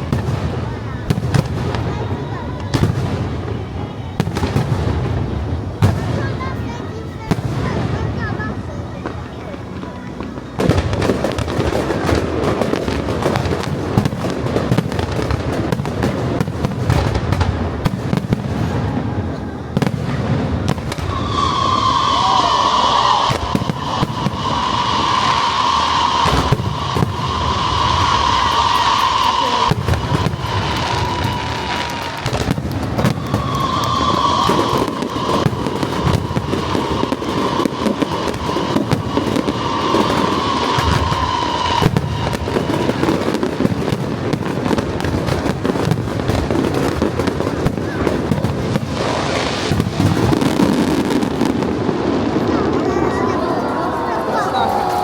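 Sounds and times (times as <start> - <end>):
fireworks bangs and crackles: 0.0 - 55.0
steady high tone: 21.0 - 43.4.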